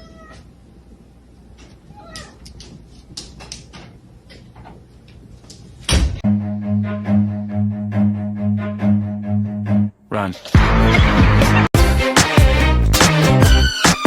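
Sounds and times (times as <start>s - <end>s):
cat meowing: 0.0s - 0.5s, 1.8s - 2.5s
low bowed-string music: 6.2s - 9.9s.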